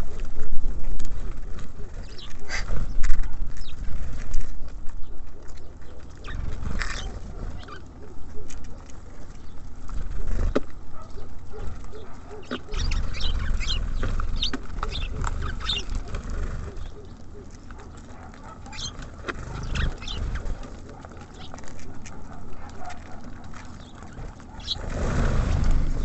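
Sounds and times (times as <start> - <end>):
small songbirds chirping: 1.0 - 26.0
low rumble: 24.8 - 26.0.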